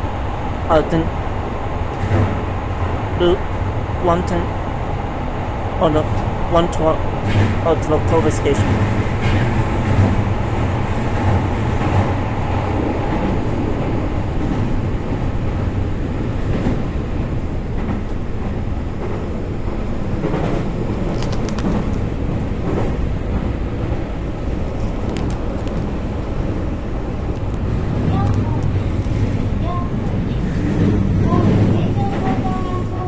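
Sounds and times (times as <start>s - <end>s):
train wheels and motors rumbling: 0.0s - 33.0s
faint clicks: 24.7s - 26.0s.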